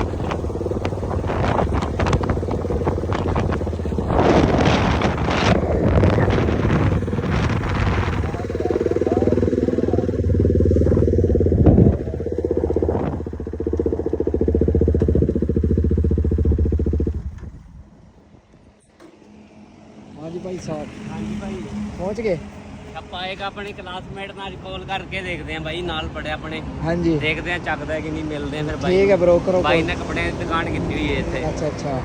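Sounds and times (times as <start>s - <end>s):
wind on microphone: 0.0s - 18.4s
motorcycle engine running: 0.0s - 18.5s, 28.8s - 31.6s.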